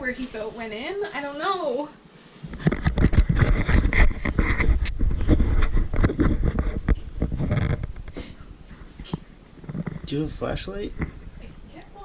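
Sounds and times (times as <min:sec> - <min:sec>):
objects knocking and scraping: 0:02.4 - 0:08.3, 0:09.0 - 0:10.2.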